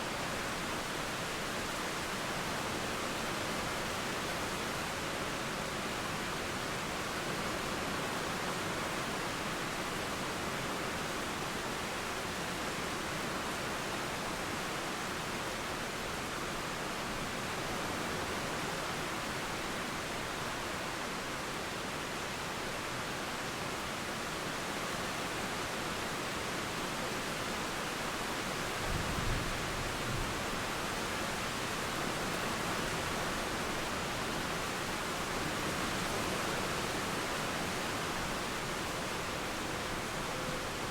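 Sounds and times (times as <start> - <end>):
river flowing: 0.0 - 40.9
rain falling: 25.2 - 40.9.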